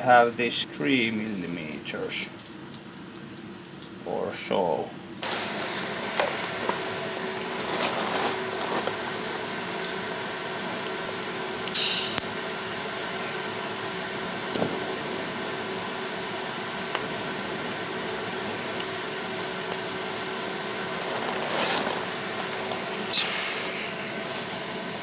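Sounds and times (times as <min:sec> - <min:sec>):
machine hum: 0:00.0 - 0:25.0
short hiss: 0:11.7 - 0:12.3, 0:23.0 - 0:24.7.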